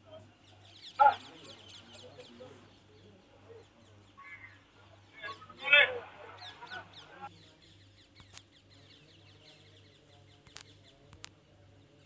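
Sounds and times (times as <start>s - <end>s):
faint rapid bird chirps: 0.0s - 12.0s.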